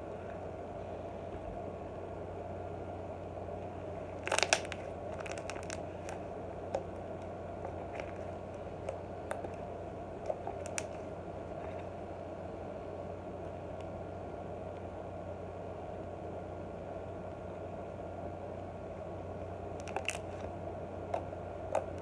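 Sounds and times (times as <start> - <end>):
steady low hum: 0.0 - 22.0
slime popping and clicking: 4.2 - 5.8.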